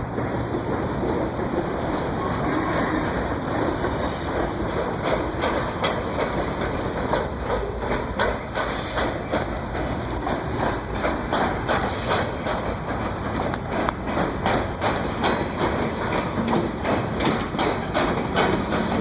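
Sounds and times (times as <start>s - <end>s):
train wheels rumbling on rail: 0.0s - 19.0s
wheels clacking over rail joints: 0.0s - 19.0s.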